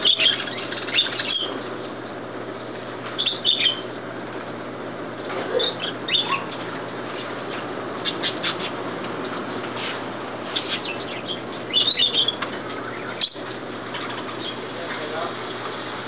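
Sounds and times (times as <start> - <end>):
birds chirping: 0.0 - 4.3, 5.0 - 16.0
steady background noise: 0.0 - 16.0.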